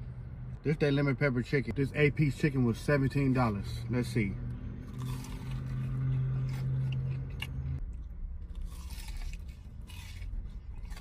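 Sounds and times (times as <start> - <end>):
low steady hum: 4.5 - 11.0
crunchy chewing: 4.8 - 11.0.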